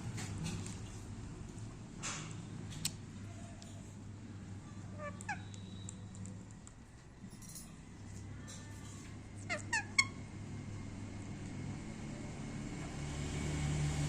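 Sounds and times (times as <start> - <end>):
parakeet calls: 4.9 - 6.0, 9.4 - 10.2.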